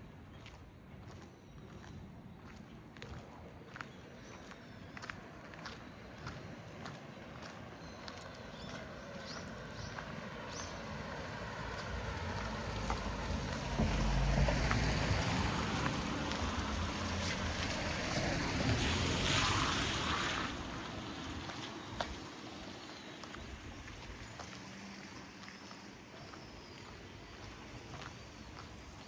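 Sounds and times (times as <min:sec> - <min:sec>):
engine passing by: 0:08.4 - 0:27.0.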